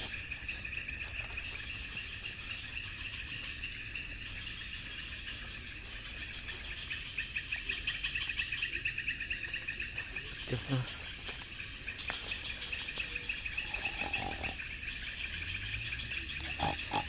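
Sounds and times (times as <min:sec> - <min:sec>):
crickets trilling: 0:00.0 - 0:17.0
fast high insect trill: 0:00.0 - 0:17.0
pulsing insect call: 0:00.0 - 0:17.0.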